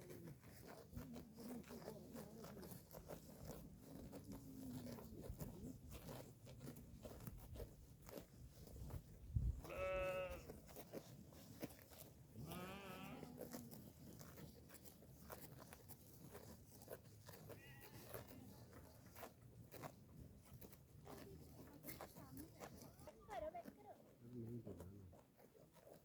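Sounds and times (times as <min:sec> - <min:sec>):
sheep bleating: 0:09.6 - 0:10.6, 0:12.4 - 0:13.6, 0:17.5 - 0:18.4.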